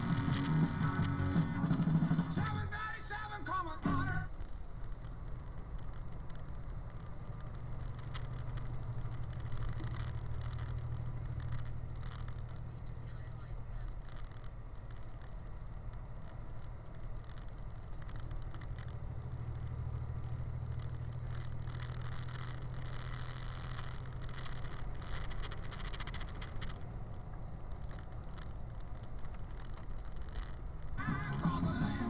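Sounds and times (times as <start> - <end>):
rock music: 0.0 - 2.7, 31.0 - 32.0
truck engine droning: 0.0 - 32.0
light rattles: 4.3 - 31.0.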